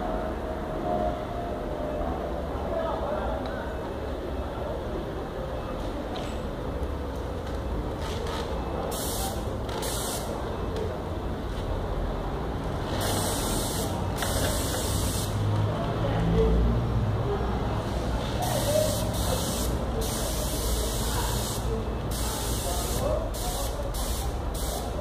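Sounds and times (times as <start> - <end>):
spray gun hissing: 9.0 - 10.3, 13.0 - 15.4, 18.4 - 25.0
air compressor humming: 13.0 - 15.4, 18.4 - 25.0.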